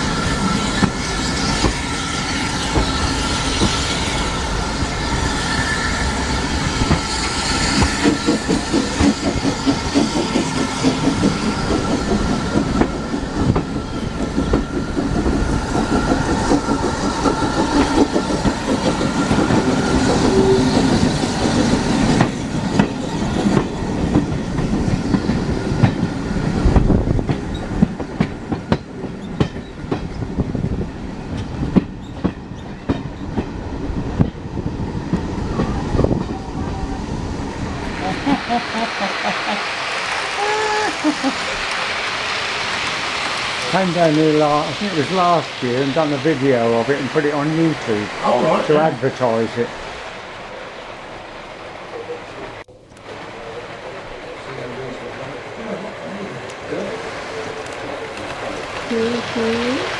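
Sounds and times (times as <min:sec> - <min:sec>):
train wheels clacking on rail joints: 0:00.1 - 0:05.1, 0:06.4 - 0:36.4.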